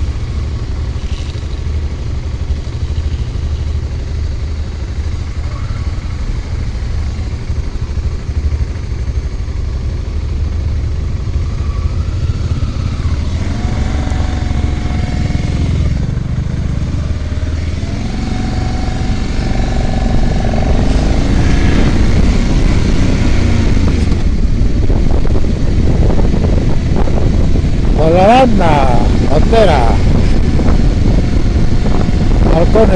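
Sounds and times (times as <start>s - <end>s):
motorcycle engine running: 0.0s - 32.9s
engine tone rising and falling: 11.2s - 32.9s.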